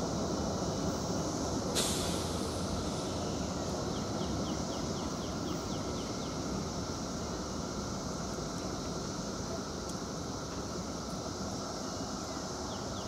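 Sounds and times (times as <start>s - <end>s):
sudden hiss: 0.2s - 5.2s.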